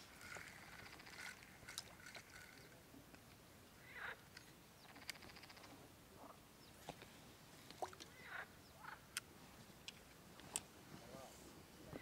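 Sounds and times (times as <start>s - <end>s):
small clicks: 0.2s - 3.4s, 4.3s - 5.7s
faint short bird calls: 8.0s - 9.0s.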